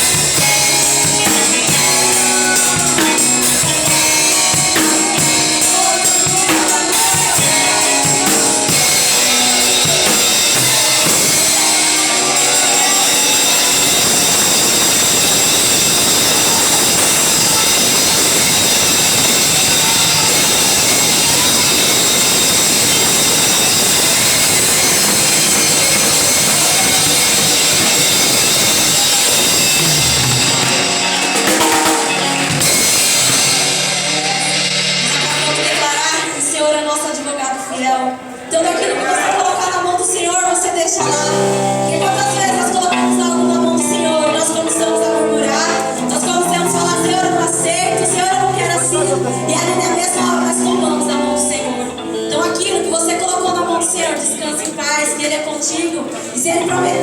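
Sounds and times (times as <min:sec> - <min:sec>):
drum kit: 0:00.0 - 0:36.6, 0:41.0 - 0:44.0
loud live band music: 0:00.0 - 0:57.0.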